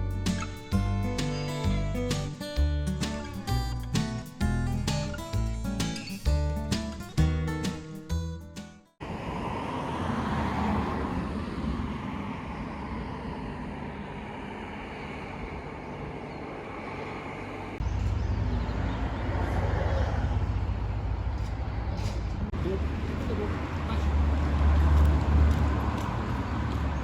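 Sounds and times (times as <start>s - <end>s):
car road and engine noise: 9.0s - 27.0s.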